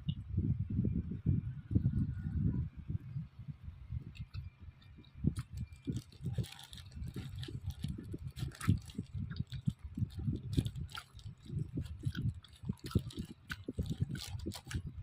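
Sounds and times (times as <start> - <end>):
person chewing food: 4.2 - 15.0.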